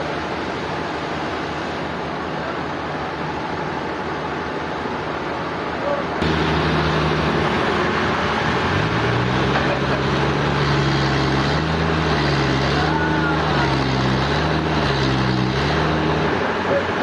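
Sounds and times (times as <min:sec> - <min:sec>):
dense grinding noise: 0:06.2 - 0:07.9
sawmill machinery humming: 0:06.2 - 0:17.0.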